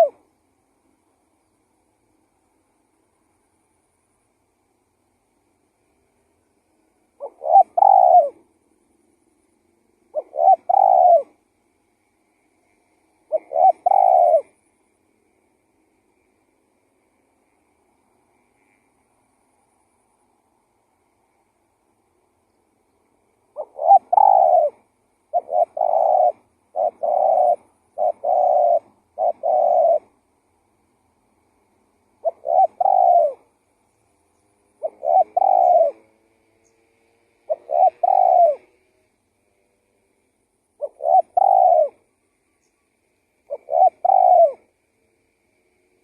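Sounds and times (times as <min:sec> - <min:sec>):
dove cooing: 0:00.0 - 0:00.3, 0:07.0 - 0:08.6, 0:10.0 - 0:11.4, 0:13.0 - 0:14.6, 0:23.5 - 0:30.2, 0:32.1 - 0:33.5, 0:34.6 - 0:39.6, 0:40.8 - 0:45.1.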